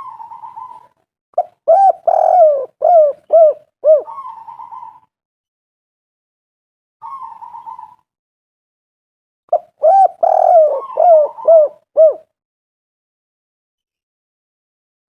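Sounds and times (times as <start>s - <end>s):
dove cooing: 0.0s - 5.1s, 7.0s - 8.0s, 9.5s - 12.3s.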